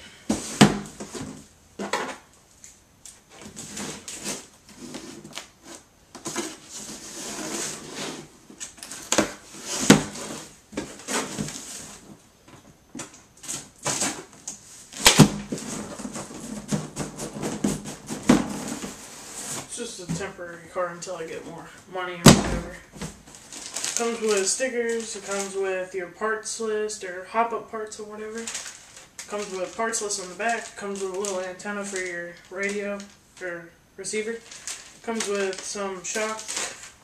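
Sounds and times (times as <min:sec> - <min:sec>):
packaging rustling: 0:23.2 - 0:25.6, 0:28.2 - 0:33.2, 0:34.2 - 0:37.0.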